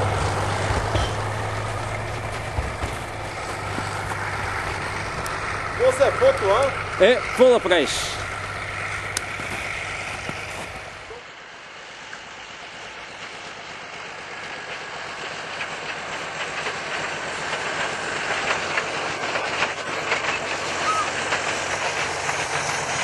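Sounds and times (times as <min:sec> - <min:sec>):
low steady hum: 0:00.0 - 0:12.0
train running: 0:00.0 - 0:23.0
wheel clicks over rail joints: 0:15.5 - 0:23.0.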